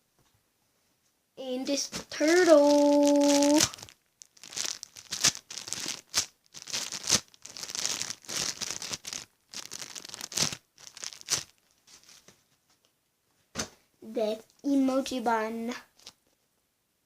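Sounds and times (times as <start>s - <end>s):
plastic bag crinkling: 2.0s - 12.3s, 15.9s - 16.2s.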